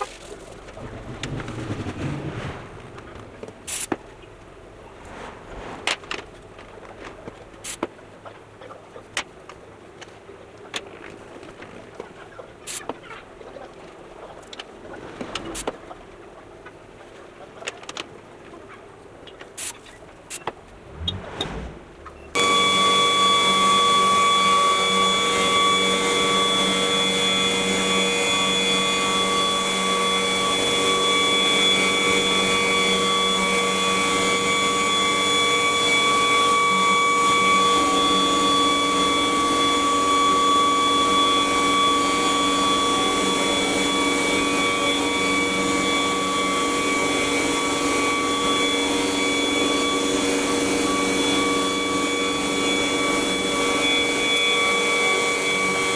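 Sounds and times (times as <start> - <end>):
wood router spindle whine: 22.3 - 55.9.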